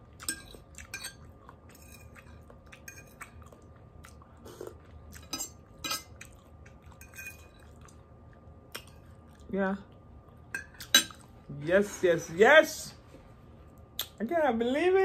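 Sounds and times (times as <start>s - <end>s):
person chewing and biting food: 0.0s - 9.5s.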